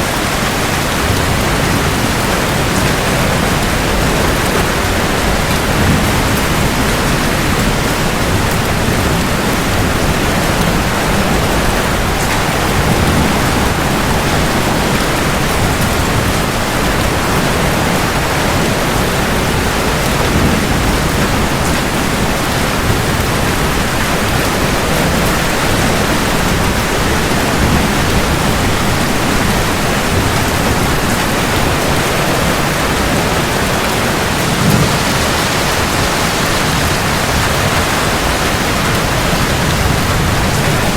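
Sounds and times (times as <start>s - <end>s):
heavy rain hiss: 0.0s - 40.9s.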